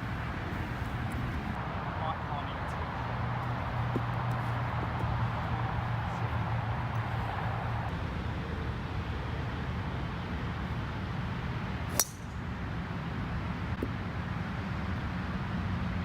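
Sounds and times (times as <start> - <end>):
golf club striking ball: 11.9 - 12.4.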